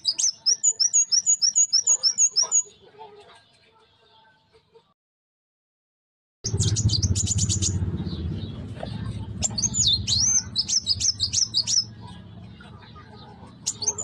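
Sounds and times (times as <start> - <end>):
bird chirping and whistling: 0.0 - 2.7, 6.5 - 8.6, 9.4 - 11.9, 13.6 - 14.0
steady low rumble: 6.5 - 13.8.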